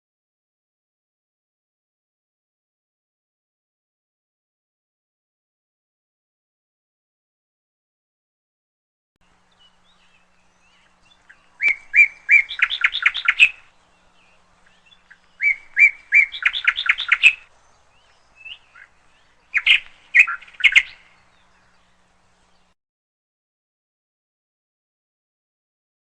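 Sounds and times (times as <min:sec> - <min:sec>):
canary chirping: 0:09.9 - 0:13.7, 0:14.3 - 0:21.5.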